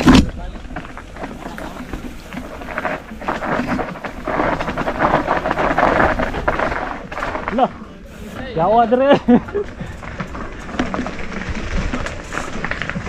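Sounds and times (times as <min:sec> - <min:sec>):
bike tyres skidding over dirt: 0:00.0 - 0:13.0.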